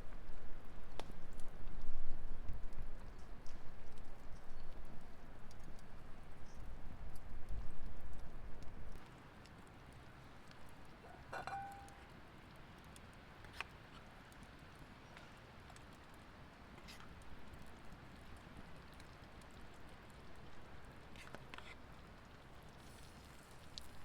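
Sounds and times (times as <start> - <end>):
campfire crackling: 0.1 - 24.0
metal clink: 11.1 - 12.0.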